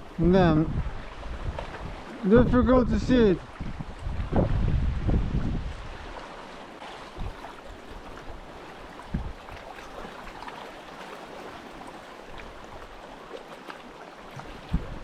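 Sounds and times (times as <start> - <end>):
water washing against rocks: 5.4 - 15.0.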